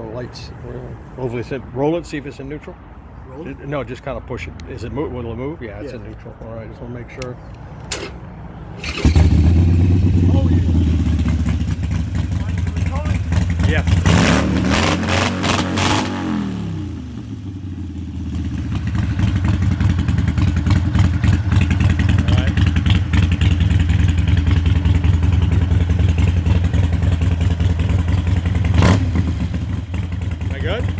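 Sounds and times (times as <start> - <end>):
motorcycle engine idling: 8.8 - 14.1, 17.6 - 30.9.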